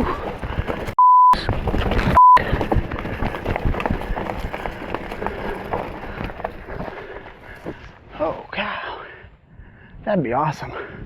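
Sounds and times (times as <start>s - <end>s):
mountain bike rolling over rocks: 0.0s - 8.4s
short bleep tone: 1.0s - 1.4s, 2.2s - 2.4s.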